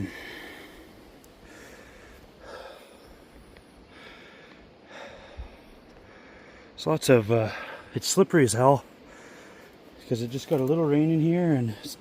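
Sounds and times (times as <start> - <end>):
man breathing hard: 0.0 - 6.8, 9.0 - 10.0.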